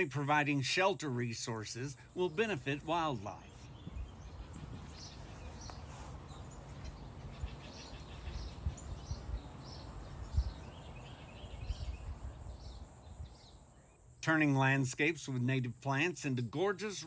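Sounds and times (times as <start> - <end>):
birds chirping: 0.0 - 14.8
low outdoor rumble: 1.2 - 13.7.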